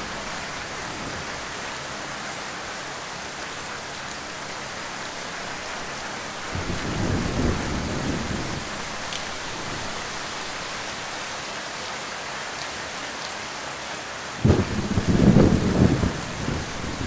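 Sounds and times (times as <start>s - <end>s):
heavy rain falling: 0.0s - 17.0s
low thunder rumble: 6.5s - 9.0s, 14.4s - 17.0s
loud thunder crack: 14.4s - 17.0s.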